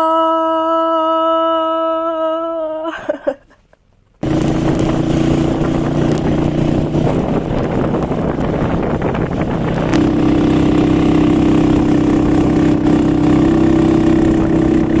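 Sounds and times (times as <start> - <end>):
engine running: 4.2 - 15.0.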